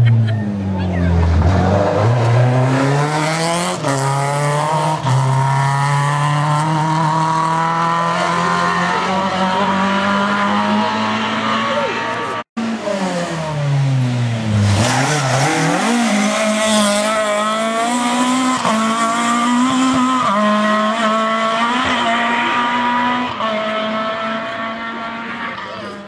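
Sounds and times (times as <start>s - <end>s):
rally car engine revving: 0.0s - 26.0s
rush of tyre noise: 0.0s - 26.0s.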